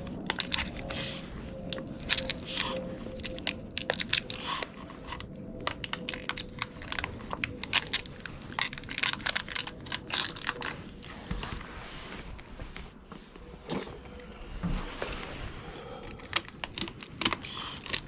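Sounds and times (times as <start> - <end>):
plastic crinkling: 0.0 - 12.4, 16.0 - 18.0.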